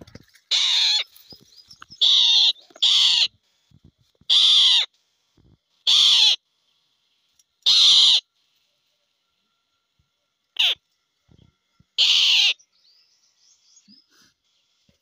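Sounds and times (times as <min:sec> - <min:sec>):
bird giving harsh calls: 0:00.5 - 0:01.2, 0:01.9 - 0:03.4, 0:04.3 - 0:04.9, 0:05.8 - 0:06.4, 0:07.6 - 0:08.3, 0:10.6 - 0:10.8, 0:12.0 - 0:12.7.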